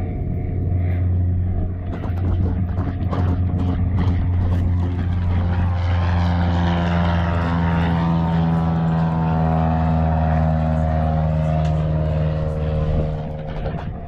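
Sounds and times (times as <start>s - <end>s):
engine droning: 0.0s - 14.0s.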